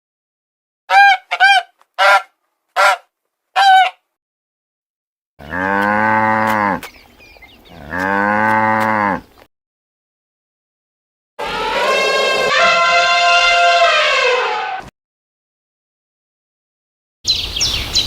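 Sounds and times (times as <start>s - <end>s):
animal calls: 0.9s - 3.0s, 3.6s - 4.0s.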